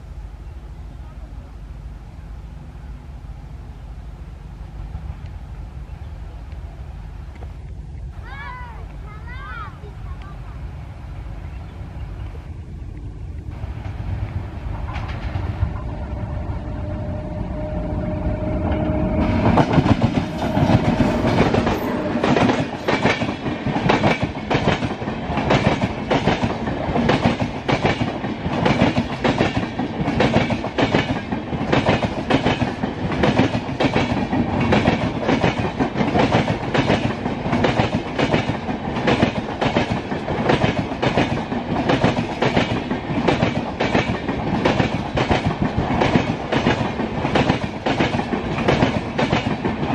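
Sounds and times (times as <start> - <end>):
train rumble: 0.0 - 49.9
train wheels clattering over rail joints: 18.8 - 49.9.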